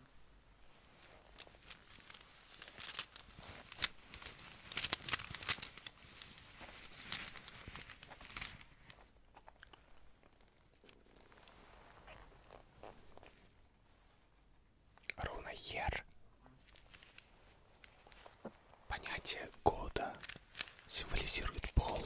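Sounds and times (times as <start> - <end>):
hand handling crackles and clicks: 1.0 - 11.3, 16.7 - 18.4, 20.0 - 22.0.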